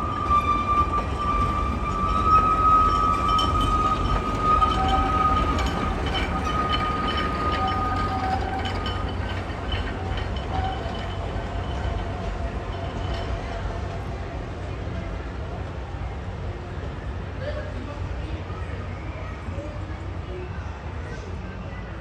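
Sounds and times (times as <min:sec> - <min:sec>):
high wavering wheel squeal: 0:00.0 - 0:14.1
train rumbling: 0:00.0 - 0:22.0.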